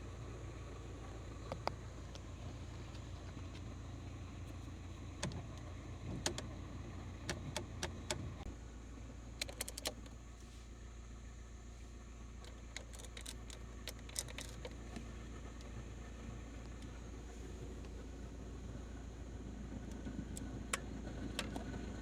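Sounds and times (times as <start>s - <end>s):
car engine idling: 0.0s - 22.0s
cabin control clicks: 5.2s - 6.5s, 7.2s - 8.5s, 9.4s - 10.2s, 12.4s - 15.7s.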